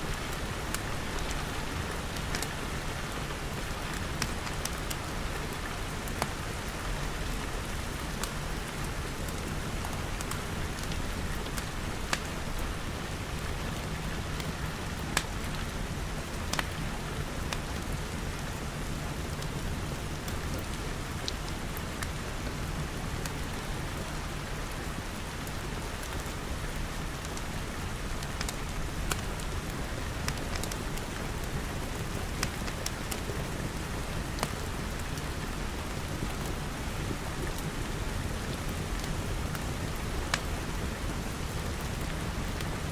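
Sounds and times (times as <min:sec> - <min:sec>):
fireplace fire crackling: 0:00.0 - 0:42.9
rain pattering on glass: 0:00.1 - 0:07.2.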